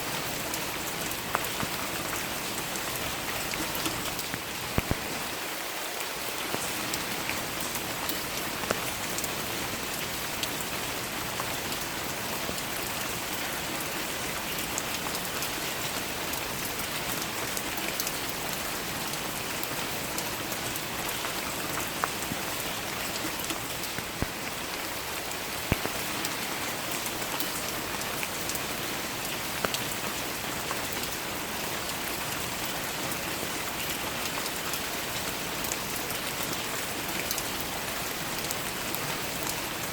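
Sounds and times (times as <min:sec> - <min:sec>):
steady rain falling: 0:00.0 - 0:39.9
rain drop taps: 0:03.8 - 0:05.1, 0:23.4 - 0:24.6, 0:25.6 - 0:26.4.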